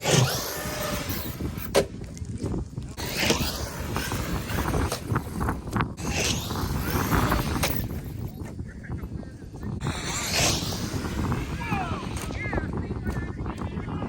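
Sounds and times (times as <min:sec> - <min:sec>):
electric motors whining: 0:00.0 - 0:01.8, 0:03.0 - 0:08.3, 0:09.8 - 0:12.8.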